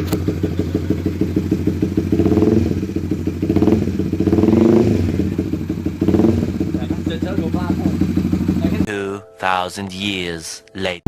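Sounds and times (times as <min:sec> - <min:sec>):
motorcycle engine idling and revving: 0:00.0 - 0:08.9.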